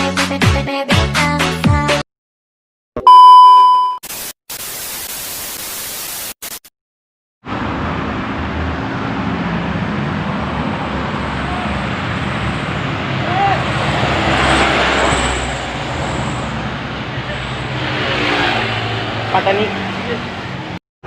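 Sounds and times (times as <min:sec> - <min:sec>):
music: 0:00.0 - 0:02.0
loud electronic beep: 0:03.0 - 0:04.0
road traffic passing: 0:07.4 - 0:20.8.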